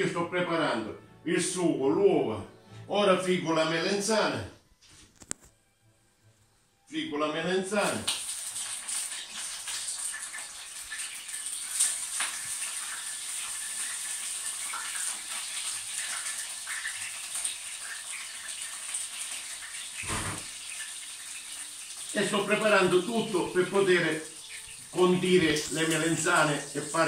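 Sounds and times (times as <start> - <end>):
slices sizzling in oil: 7.8 - 27.0
short thump: 20.0 - 20.4.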